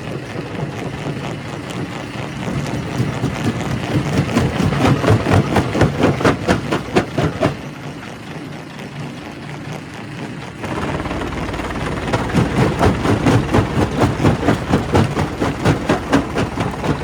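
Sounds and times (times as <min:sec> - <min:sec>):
rock crusher running: 0:00.0 - 0:08.5, 0:09.1 - 0:17.0
rock cracking in crusher: 0:10.6 - 0:17.0.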